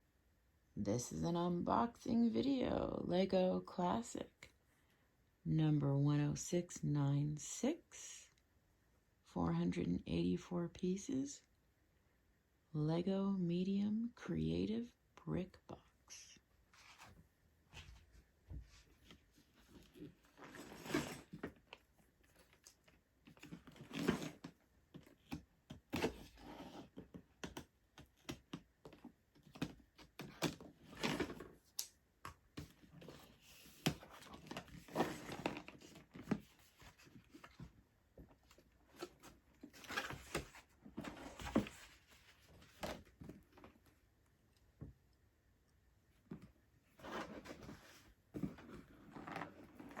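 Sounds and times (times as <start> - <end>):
cardboard scraping: 18.8 - 21.6, 23.3 - 25.3, 32.6 - 37.7, 38.4 - 43.6, 46.9 - 50.0.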